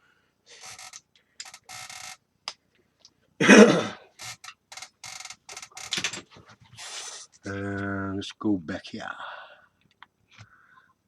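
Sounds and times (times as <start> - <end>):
man coughing: 3.4 - 4.1.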